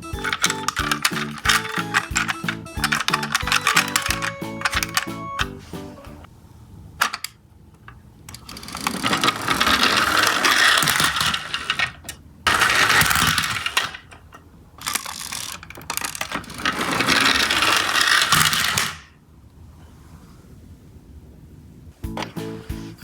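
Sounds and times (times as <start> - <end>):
toy truck wheels and gears whirring: 0.0 - 6.0, 8.3 - 14.2, 14.8 - 19.2.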